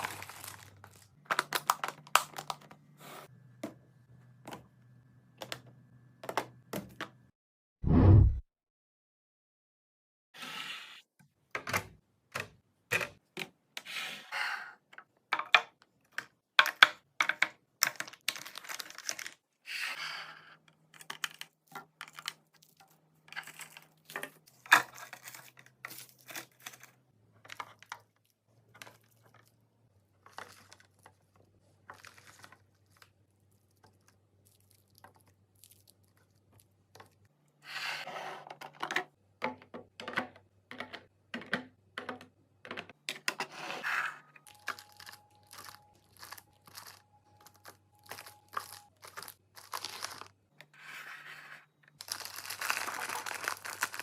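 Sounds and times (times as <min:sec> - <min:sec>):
plastic crinkling and tearing: 0:00.0 - 0:02.7, 0:44.5 - 0:50.4, 0:52.0 - 0:54.0
items set down knocking: 0:38.6 - 0:43.5.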